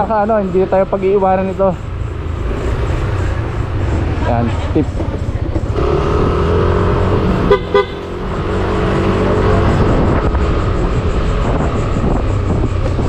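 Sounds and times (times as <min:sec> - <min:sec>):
low wind rumble: 0:00.0 - 0:13.0
scooter horn beeps: 0:07.5 - 0:08.1.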